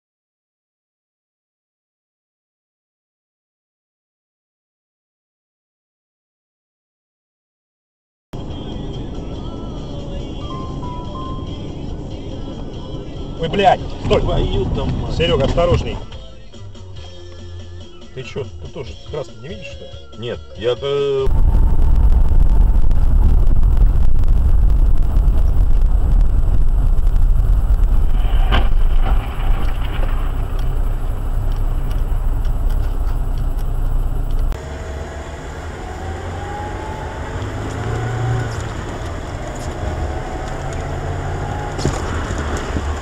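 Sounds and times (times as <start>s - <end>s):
car road and engine rumble: 8.4s - 19.8s, 21.2s - 43.0s
quieter traffic: 8.4s - 19.8s, 27.2s - 43.0s
engine tone rising: 21.2s - 43.0s.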